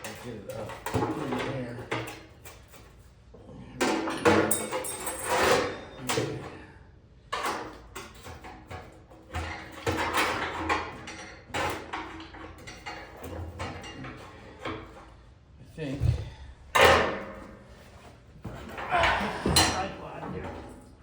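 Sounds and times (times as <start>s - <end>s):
heavy metal pieces clanking: 18.5s - 21.0s.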